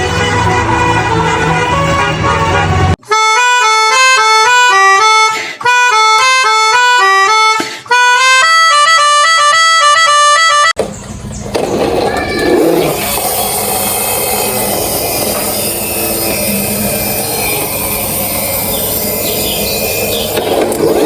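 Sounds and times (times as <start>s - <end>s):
electronic horn-like melody: 0.0s - 10.8s, 12.5s - 21.0s
low hum: 10.8s - 21.0s.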